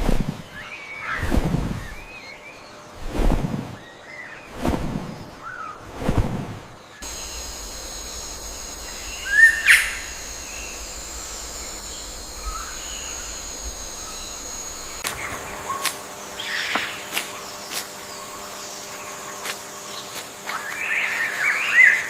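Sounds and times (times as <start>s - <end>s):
birds chirping: 6.8s - 22.0s
high-pitched drone: 7.0s - 19.2s.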